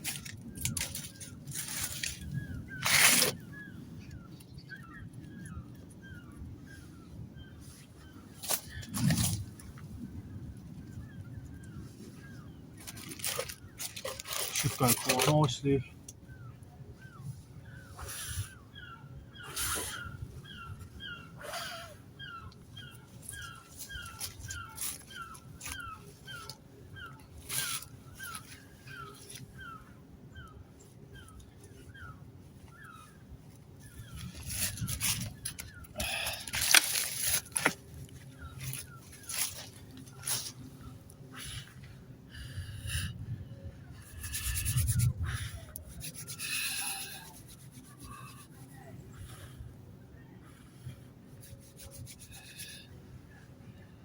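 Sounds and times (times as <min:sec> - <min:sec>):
rustling and scraping: 0:00.0 - 0:04.5, 0:07.6 - 0:15.8, 0:22.5 - 0:29.8, 0:30.8 - 0:42.6, 0:44.0 - 0:49.8, 0:50.4 - 0:53.9
small crackles: 0:00.0 - 0:06.6, 0:07.7 - 0:43.0.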